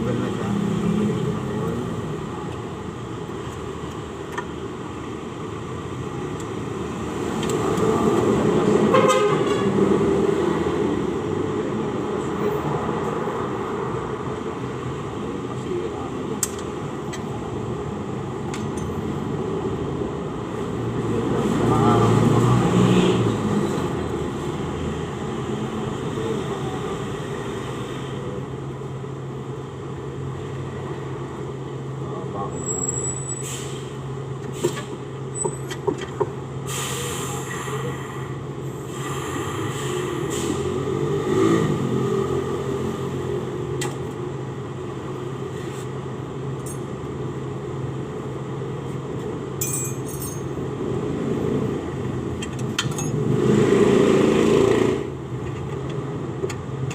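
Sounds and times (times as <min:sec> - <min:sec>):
workshop background hum: 0:48.8 - 0:50.6.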